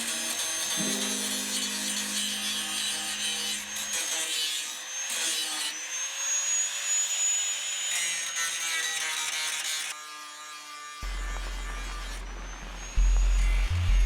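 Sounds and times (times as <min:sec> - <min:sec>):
low background music: 0:00.0 - 0:04.0
power tool whining and rasping: 0:00.0 - 0:14.0.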